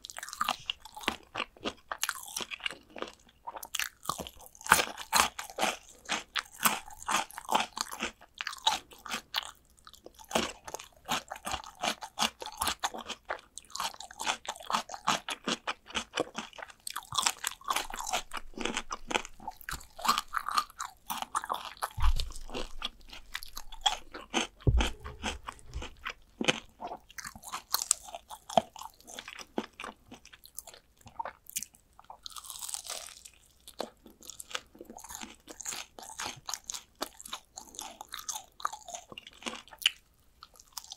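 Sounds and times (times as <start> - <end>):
crunching fried chicken: 0.0 - 40.9
dull low thumps: 21.9 - 26.5.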